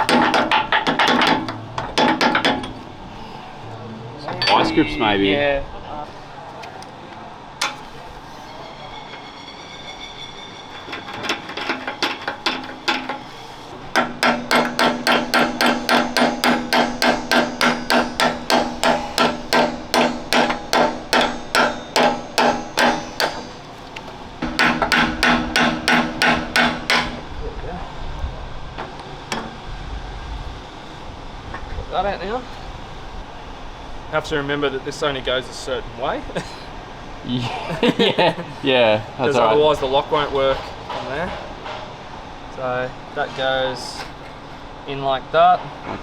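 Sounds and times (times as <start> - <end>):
hammer blows ringing on steel: 11.3 - 27.4.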